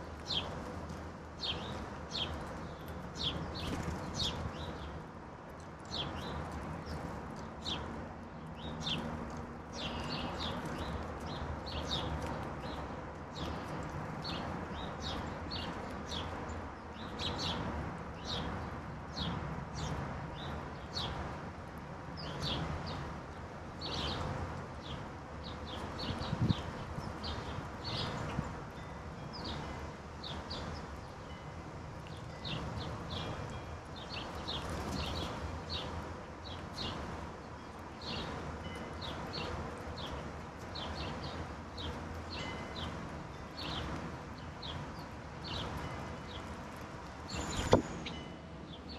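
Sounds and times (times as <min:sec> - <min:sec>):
songbirds chirping: 0:00.1 - 0:21.4, 0:22.1 - 0:48.9.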